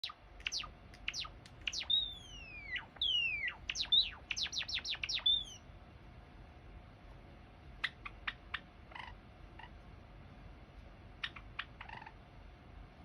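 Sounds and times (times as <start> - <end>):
sparrow singing: 0.0 - 5.6, 11.2 - 12.2.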